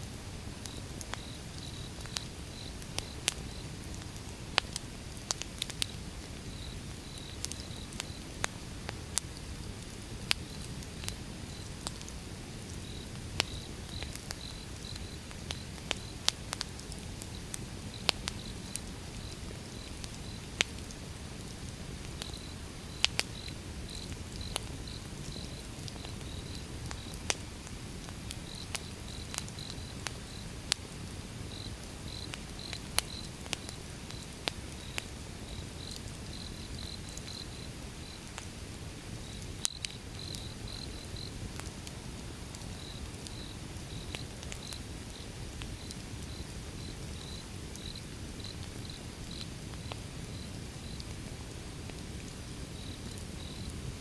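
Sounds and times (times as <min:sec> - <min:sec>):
fire rumbling: 0:00.1 - 0:54.0
logs crackling and popping: 0:00.6 - 0:54.0.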